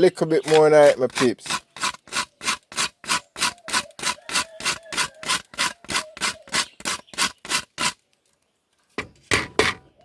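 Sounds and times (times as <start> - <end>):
nutmeg rasped on metal grater: 0.2 - 8.0.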